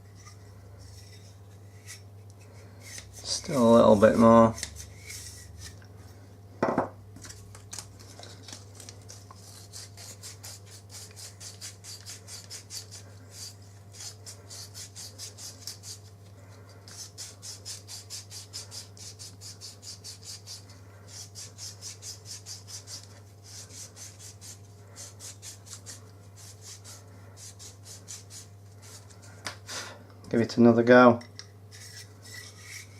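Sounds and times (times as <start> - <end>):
sandpaper rasping: 9.1 - 16.1, 16.9 - 29.2.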